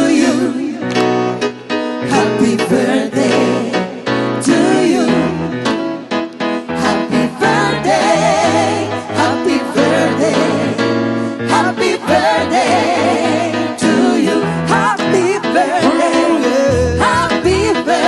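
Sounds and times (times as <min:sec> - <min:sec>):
person singing with vibrato: 0:06.6 - 0:18.0
bass notes: 0:16.7 - 0:17.8.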